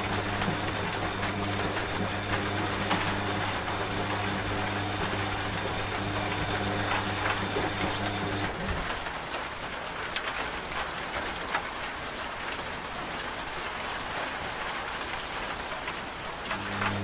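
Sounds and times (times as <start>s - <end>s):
washing machine humming: 0.0s - 9.2s, 16.4s - 17.0s
steady rain: 0.0s - 17.0s.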